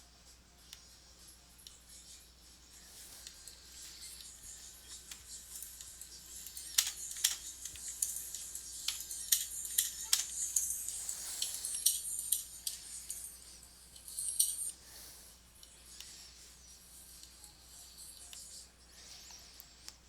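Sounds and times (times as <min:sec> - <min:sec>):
typing on a computer keyboard: 0:05.2 - 0:10.8.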